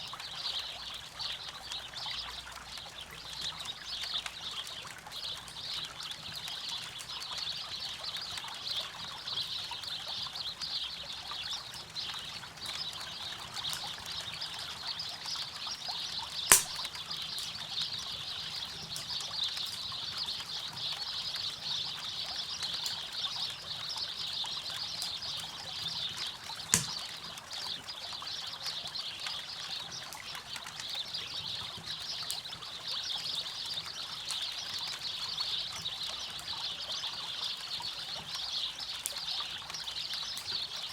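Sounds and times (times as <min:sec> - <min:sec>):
campfire wood popping: 0:16.4 - 0:18.0, 0:26.0 - 0:27.3.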